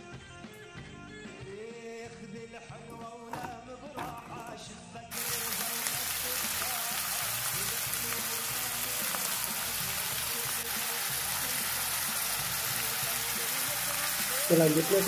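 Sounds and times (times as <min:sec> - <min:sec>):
onion sizzling in a wok: 0:05.1 - 0:15.0.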